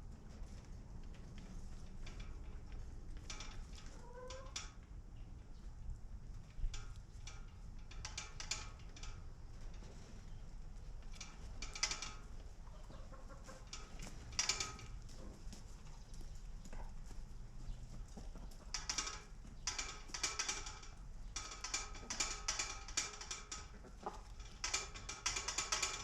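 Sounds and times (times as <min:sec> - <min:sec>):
chickens clucking: 0:12.6 - 0:13.7.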